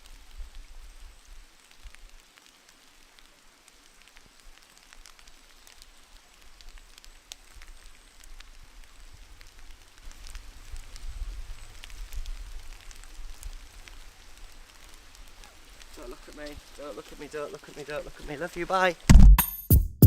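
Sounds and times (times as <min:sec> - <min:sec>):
light drips and ticks: 0:00.0 - 0:19.0
wind rumble on microphone: 0:08.4 - 0:15.9.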